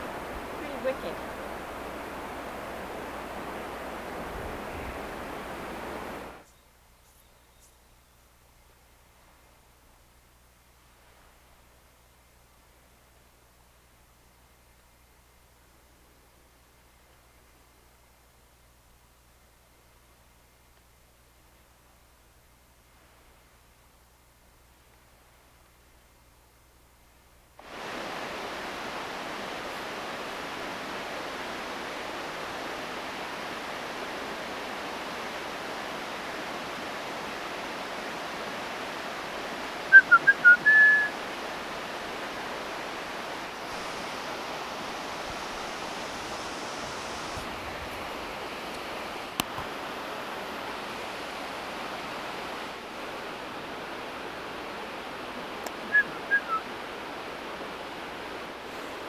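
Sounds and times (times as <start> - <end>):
rushing water: 0.0 - 6.4, 27.6 - 59.0
short high whistled notes: 39.9 - 41.1.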